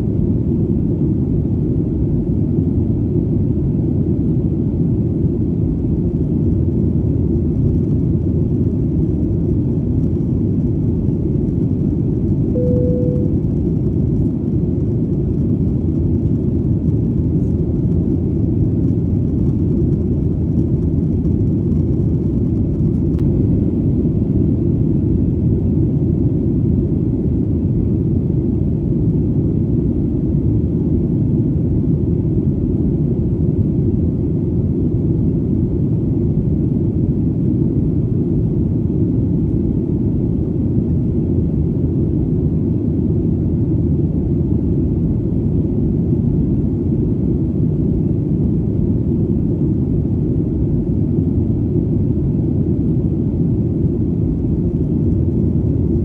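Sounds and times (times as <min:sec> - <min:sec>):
airplane in flight rumble: 0:00.0 - 0:56.0.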